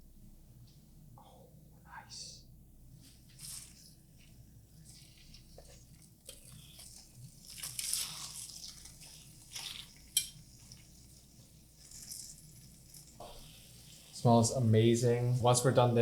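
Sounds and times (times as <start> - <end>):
utensil clicking on pan: 10.2 - 10.4.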